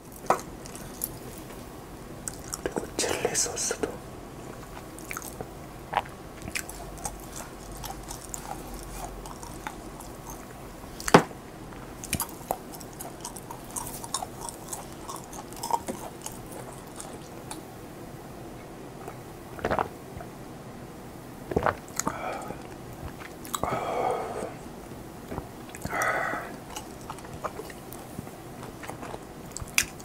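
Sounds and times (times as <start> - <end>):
chewing and biting food: 0.0 - 1.6, 2.2 - 2.9, 4.5 - 11.2, 11.8 - 17.7, 21.5 - 23.8, 25.2 - 30.0
wet mouth clicks and smacks: 28.8 - 30.0.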